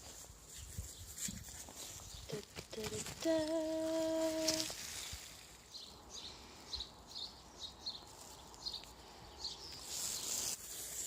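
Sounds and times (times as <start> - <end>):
small birds chirping: 0.0 - 11.0
steady hiss: 8.0 - 11.0.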